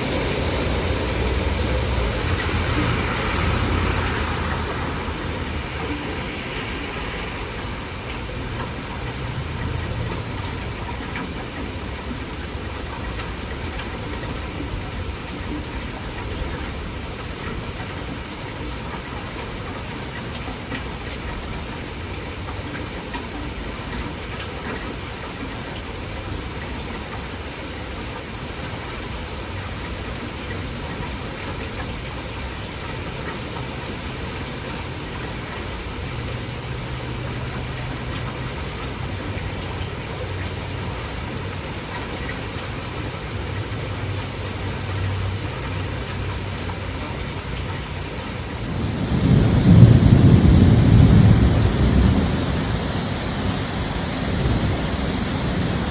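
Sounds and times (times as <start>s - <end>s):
heavy rain: 0.0s - 55.9s
thunder rumbling: 48.3s - 55.9s.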